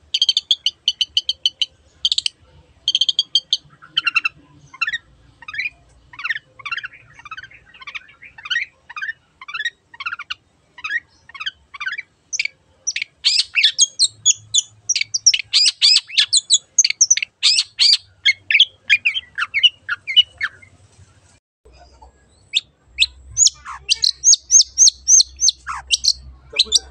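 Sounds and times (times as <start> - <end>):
bird singing sweeping chirps: 22.4 - 26.9.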